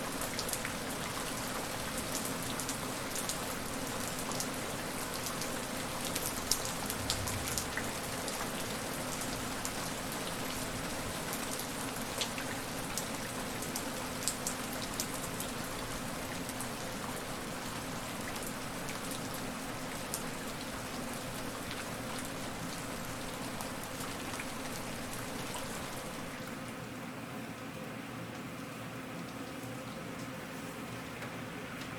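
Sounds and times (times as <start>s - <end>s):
steady rain hiss: 0.0s - 26.6s
sharp drop hits: 6.9s - 8.3s.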